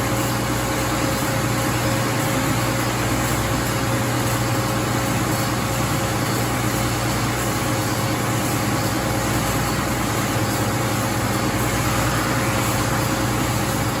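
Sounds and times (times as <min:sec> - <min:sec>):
belt sander running: 0:08.4 - 0:14.0.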